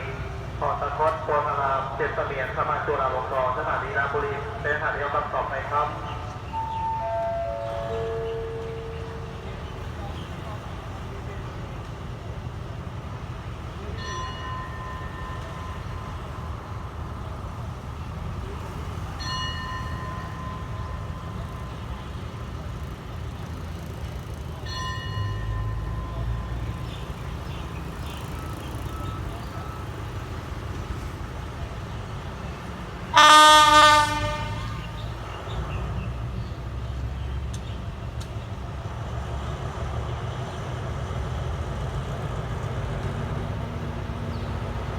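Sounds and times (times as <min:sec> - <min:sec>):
train rumbling: 0:00.0 - 0:44.9
train horn blast: 0:33.1 - 0:35.3.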